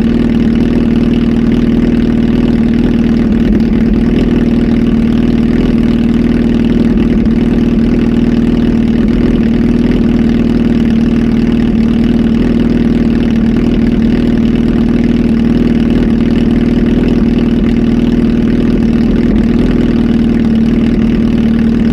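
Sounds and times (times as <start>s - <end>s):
motorcycle engine idling: 0.0s - 21.9s.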